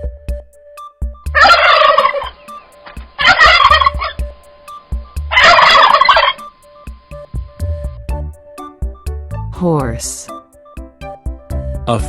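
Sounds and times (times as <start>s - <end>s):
turkey gobbling: 1.4s - 4.3s, 5.3s - 6.5s.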